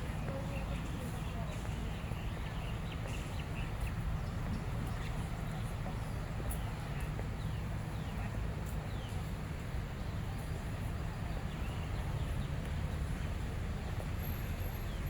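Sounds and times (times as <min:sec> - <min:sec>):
faint distant voices: 0:00.0 - 0:15.0.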